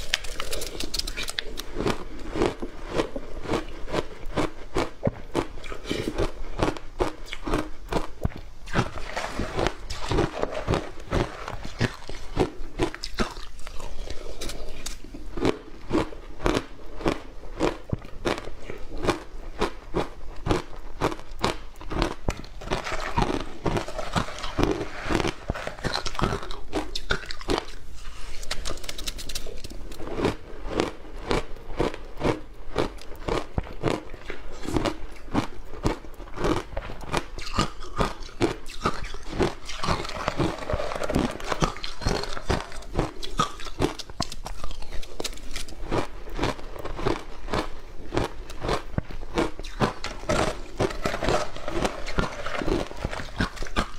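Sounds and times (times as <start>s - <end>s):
person chewing crunchy ice: 0.0s - 53.9s.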